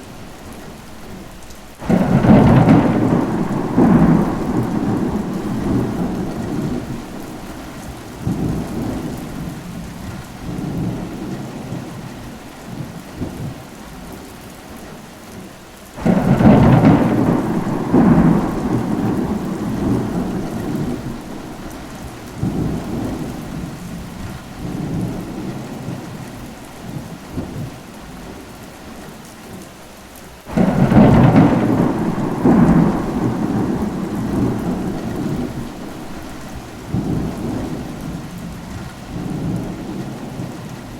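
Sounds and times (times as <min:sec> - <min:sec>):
steady rain: 0:00.0 - 0:40.9
thunder claps rolling: 0:01.8 - 0:12.0, 0:16.0 - 0:26.2, 0:30.5 - 0:40.9.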